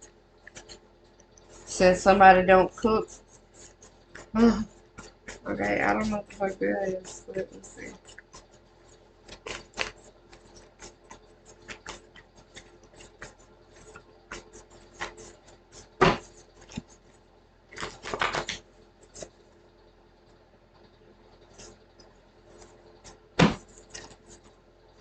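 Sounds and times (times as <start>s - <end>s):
cards being shuffled: 17.8s - 18.6s.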